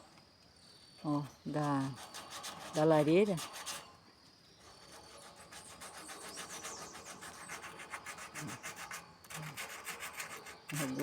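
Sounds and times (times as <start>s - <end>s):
sanding rusty iron: 4.8s - 11.0s.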